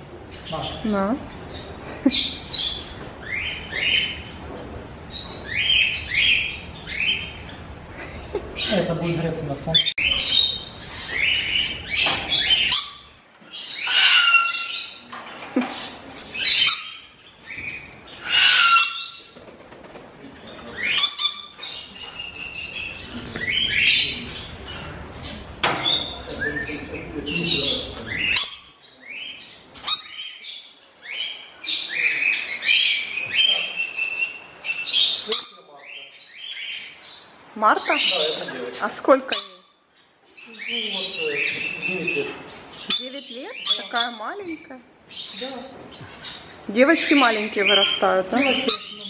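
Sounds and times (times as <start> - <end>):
birds chirping and whistling: 0.2 - 4.4, 5.1 - 19.4, 20.4 - 49.0
bird squawk: 13.7 - 15.0, 17.6 - 19.4.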